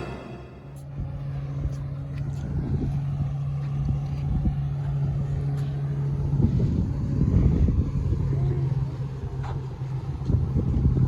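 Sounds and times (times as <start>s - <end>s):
watercraft engine humming: 0.0s - 2.1s, 2.9s - 10.9s
low rumble: 0.0s - 5.5s.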